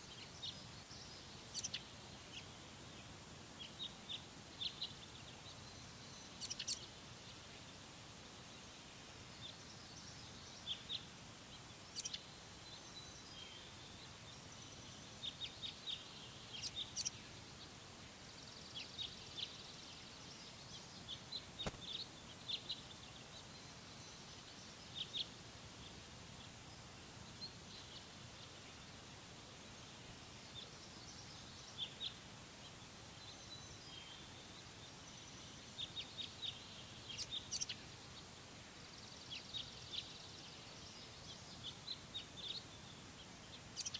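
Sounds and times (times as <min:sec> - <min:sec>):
faint background hiss: 0:00.0 - 0:43.9
small birds chirping: 0:00.0 - 0:43.9
faint click: 0:21.6 - 0:22.0.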